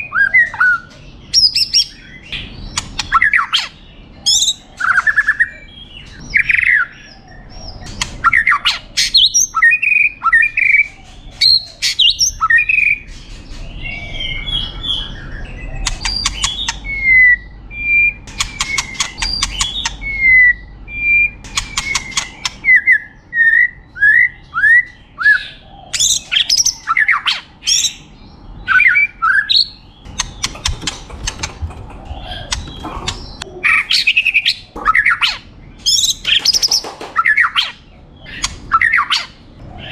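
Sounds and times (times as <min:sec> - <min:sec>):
bird singing whistles and trills: 0:00.0 - 0:31.4.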